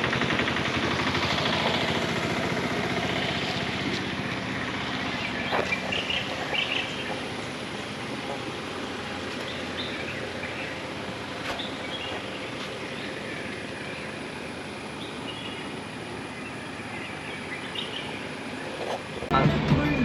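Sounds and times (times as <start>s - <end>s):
vehicle rushing on road: 0.0s - 20.0s.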